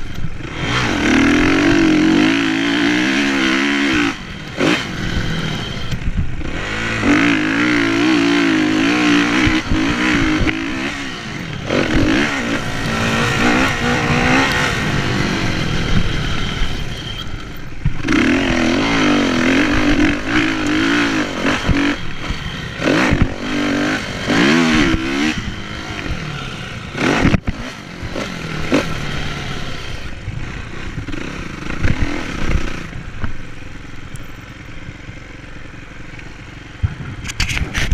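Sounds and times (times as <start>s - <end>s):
motorcycle engine revving: 0.0s - 37.9s
knocks and clatter from bike: 30.9s - 33.5s, 36.1s - 37.9s.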